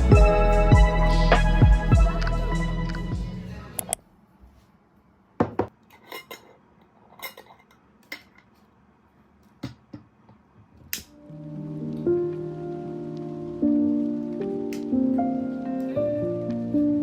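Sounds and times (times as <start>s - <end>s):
dishes and utensils clinking: 5.5s - 8.5s.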